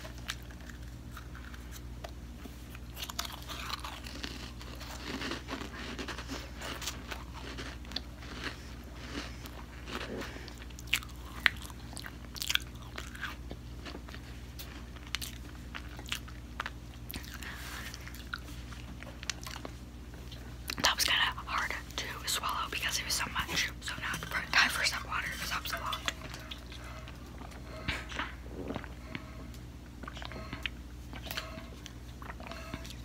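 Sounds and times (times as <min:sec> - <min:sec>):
crunchy biscuit chewing: 0:00.0 - 0:33.0.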